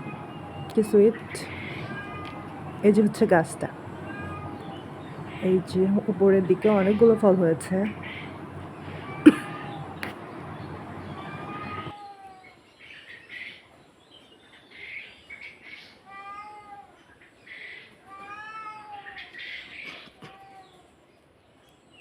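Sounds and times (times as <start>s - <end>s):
cat meowing: 0.0s - 5.6s, 6.6s - 12.3s.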